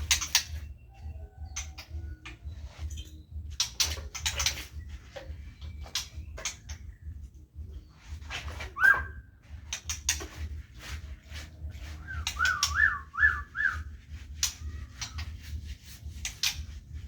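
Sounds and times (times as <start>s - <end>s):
bird whistling: 8.7s - 9.3s, 11.9s - 15.2s
cleaning knocks and clatter: 9.5s - 17.0s.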